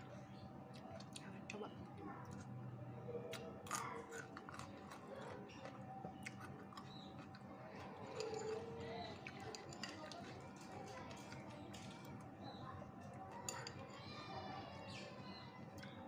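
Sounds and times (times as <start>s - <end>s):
chewing crisp fruit: 0.5s - 2.7s, 3.3s - 13.2s.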